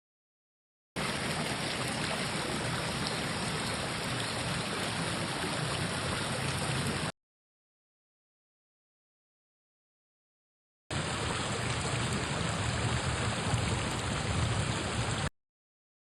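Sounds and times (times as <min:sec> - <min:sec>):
stream babbling over rocks: 0:01.0 - 0:07.1, 0:10.9 - 0:15.3.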